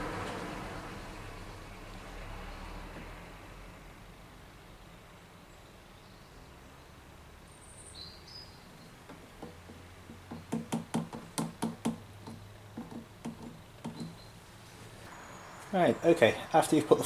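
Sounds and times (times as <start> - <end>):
faint high chirp: 15.1 - 16.5.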